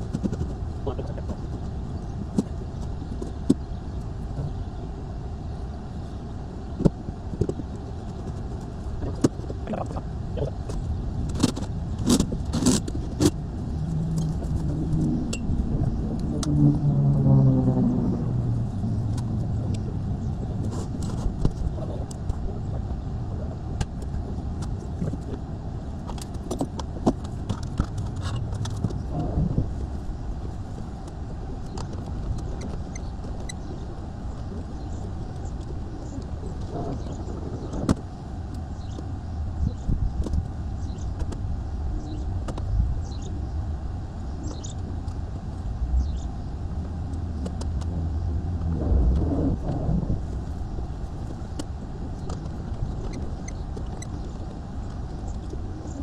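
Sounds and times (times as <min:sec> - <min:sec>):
low rumble: 0:00.0 - 0:56.0.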